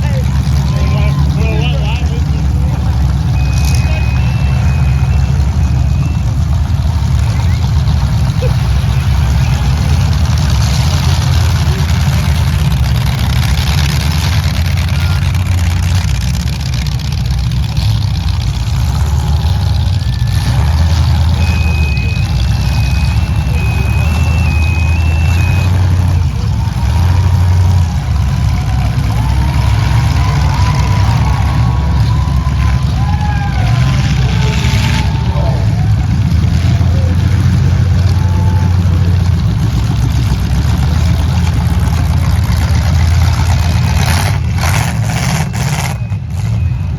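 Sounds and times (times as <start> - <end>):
truck engines running loud: 0.0 - 46.9
two-pitch electronic beeps: 3.4 - 6.2, 21.3 - 25.7.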